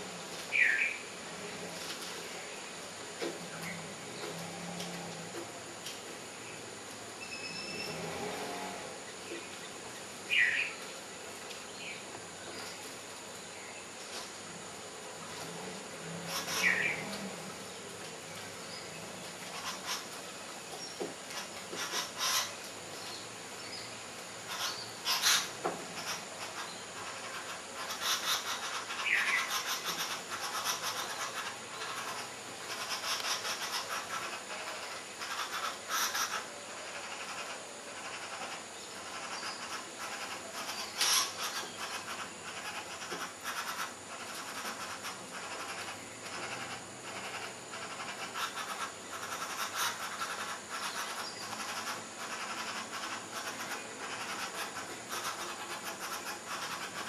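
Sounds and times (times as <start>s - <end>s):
high insect drone: 0.0s - 57.0s
short chirping calls: 7.2s - 8.0s.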